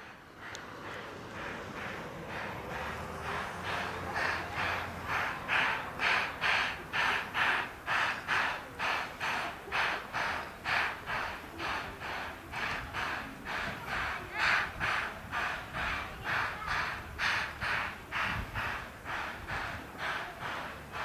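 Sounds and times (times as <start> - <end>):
steam locomotive chuffing: 0.0 - 21.0.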